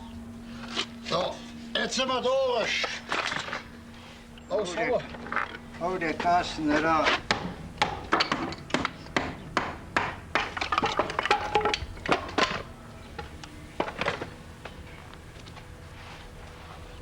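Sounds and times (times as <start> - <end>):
hand tool chopping wood: 6.0 - 14.3.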